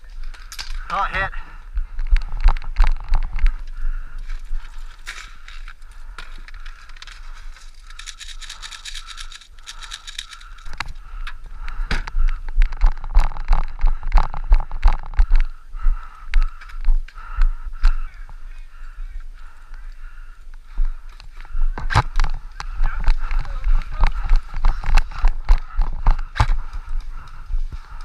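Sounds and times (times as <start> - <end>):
rapid fine ticking: 0.3 - 18.2
gear clattering and scraping: 4.4 - 11.0
clicks and rattles: 5.0 - 15.5.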